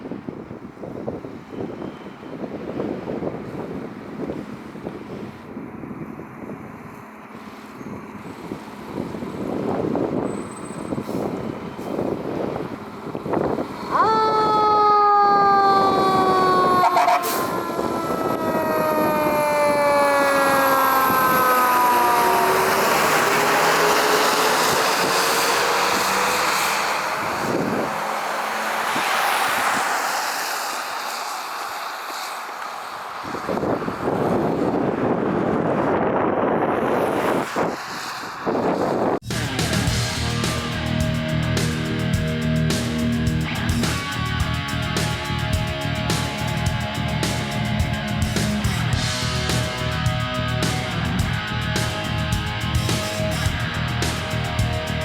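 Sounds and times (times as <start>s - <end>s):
truck engine passing: 2.4s - 55.0s
fire truck siren: 7.4s - 39.2s.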